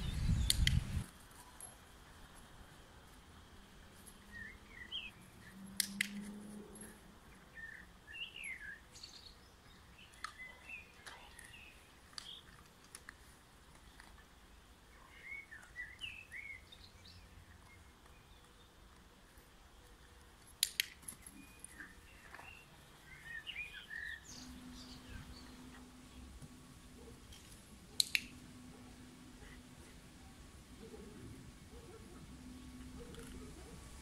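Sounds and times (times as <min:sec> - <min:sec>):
small birds chirping: 0:00.0 - 0:01.1, 0:03.9 - 0:06.1, 0:07.3 - 0:12.7, 0:13.7 - 0:34.0
sharp clicks: 0:00.4 - 0:01.1, 0:05.7 - 0:06.4, 0:20.4 - 0:21.8, 0:27.9 - 0:28.5.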